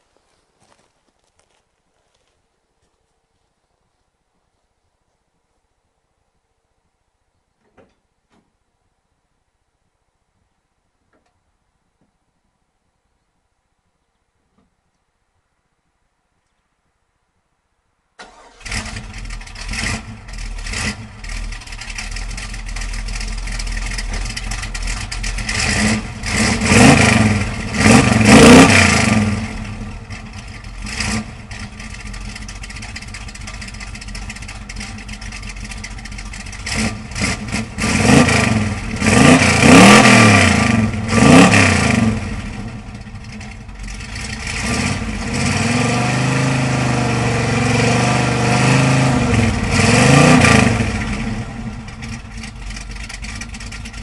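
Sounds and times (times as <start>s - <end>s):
car engine starting: 18.2s - 54.0s
engine revving in blips: 18.2s - 54.0s
car engine fast idle: 31.4s - 36.7s, 51.6s - 54.0s.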